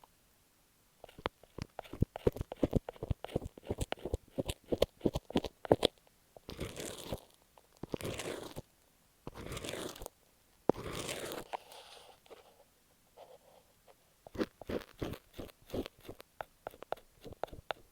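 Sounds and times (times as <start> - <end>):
scratching strokes across tape: 7.9 - 8.7, 9.3 - 10.1, 10.7 - 12.3, 14.3 - 17.9
fingertip tapping on tape: 15.1 - 17.9.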